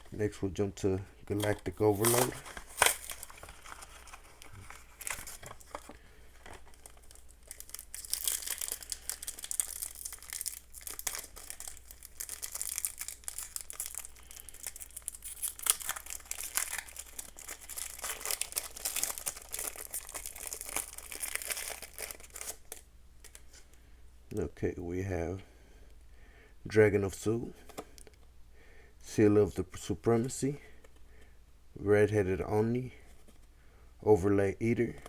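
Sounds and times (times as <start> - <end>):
foil wrapper crinkling and tearing: 1.3 - 23.4.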